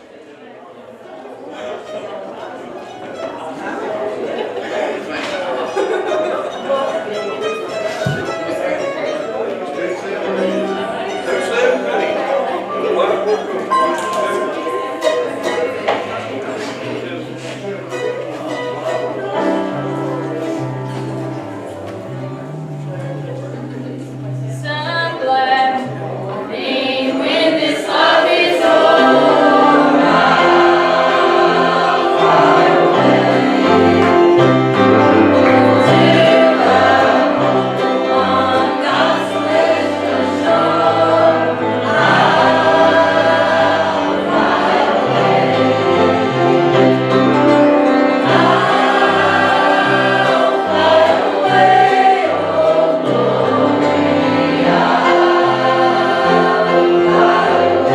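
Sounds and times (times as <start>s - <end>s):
choir singing gospel: 3.7s - 57.9s
held low accompaniment: 13.7s - 26.8s.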